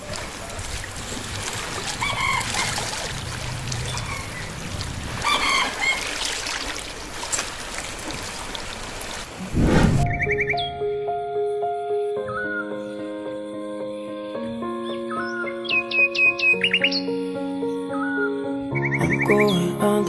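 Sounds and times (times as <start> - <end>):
rooster crowing: 5.2 - 6.1
rain hissing: 8.2 - 10.6.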